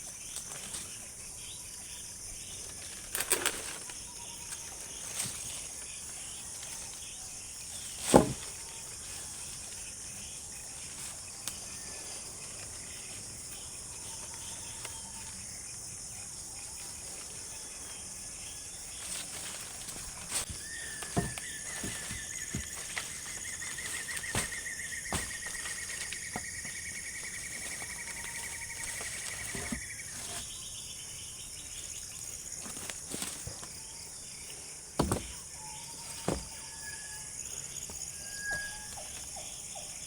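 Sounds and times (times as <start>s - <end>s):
high-pitched insect chorus: 0.0s - 40.0s
sharp knocks: 35.0s - 35.4s.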